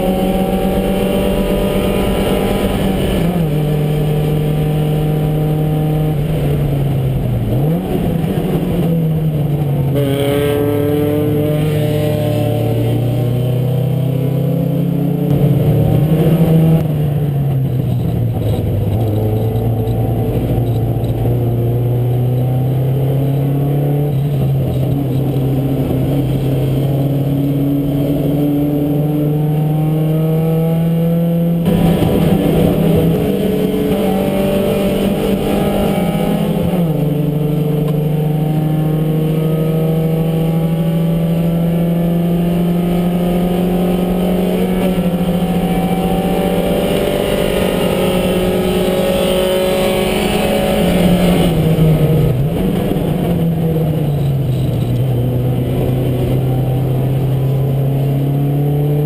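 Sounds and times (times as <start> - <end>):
race car engine under load: 14.3 - 59.0.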